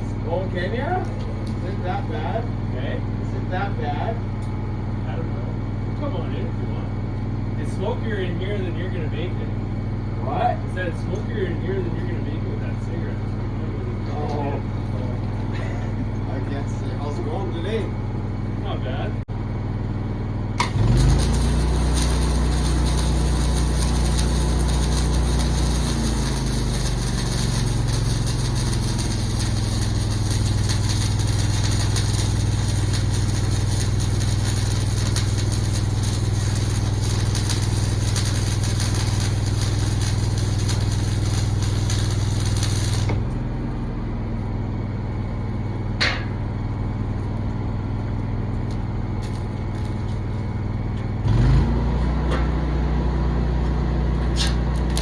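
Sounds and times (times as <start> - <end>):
engine humming: 0.0 - 55.0
loud hiss: 20.6 - 43.2.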